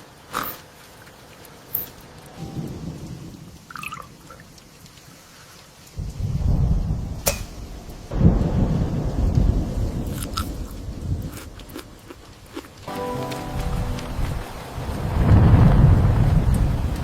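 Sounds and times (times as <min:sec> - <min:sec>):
rain: 0:00.0 - 0:17.0
thunder rumbling: 0:02.4 - 0:04.3, 0:06.0 - 0:12.3, 0:12.9 - 0:17.0.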